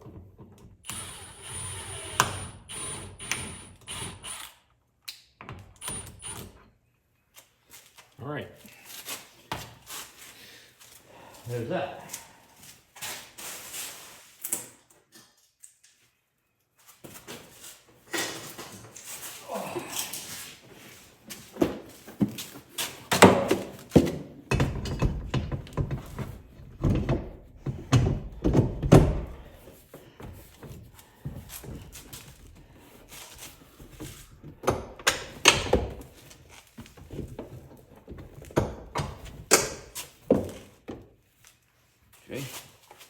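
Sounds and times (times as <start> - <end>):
hardware thunks and knocks: 23.1 - 29.5.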